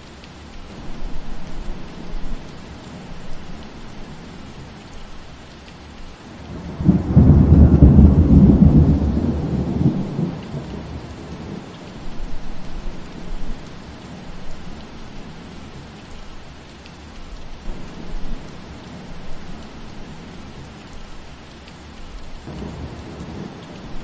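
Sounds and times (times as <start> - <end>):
steady rain: 0.0 - 24.0
thunder rumbling: 6.4 - 15.8, 17.6 - 21.3, 22.3 - 24.0.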